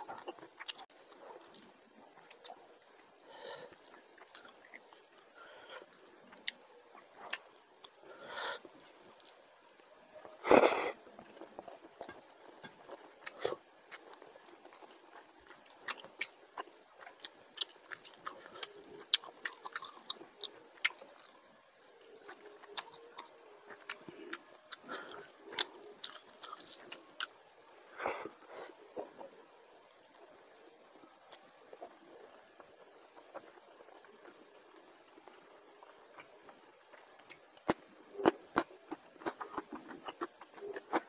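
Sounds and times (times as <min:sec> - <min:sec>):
wet chewing mouth sounds: 0:10.2 - 0:21.3, 0:22.0 - 0:29.4, 0:36.2 - 0:41.0.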